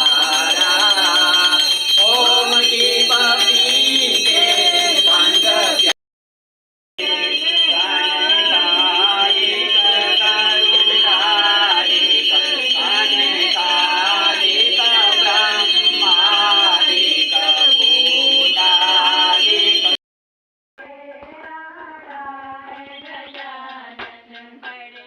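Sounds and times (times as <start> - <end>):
person singing: 0.0 - 5.9.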